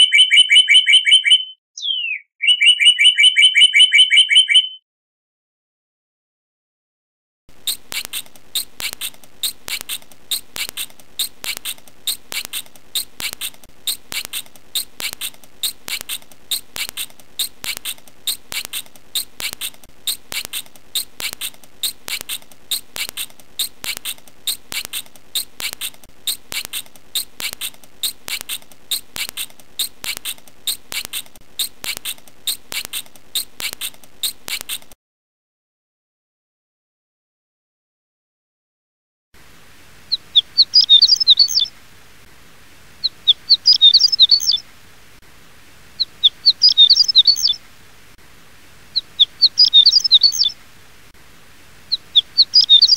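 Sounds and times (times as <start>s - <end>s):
small animal chirping: 0.0s - 4.8s, 7.6s - 35.0s, 40.3s - 41.7s, 43.0s - 44.6s, 46.0s - 47.6s, 48.9s - 50.6s, 51.9s - 52.9s.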